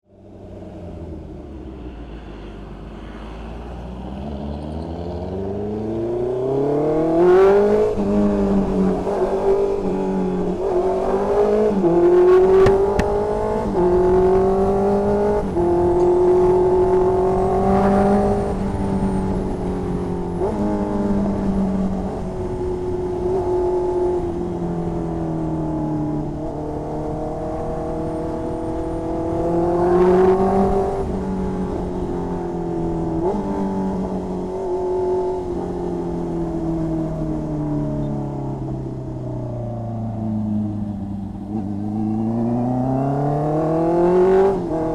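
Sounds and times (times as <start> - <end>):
motorcycle engine revving: 11.0 - 15.3.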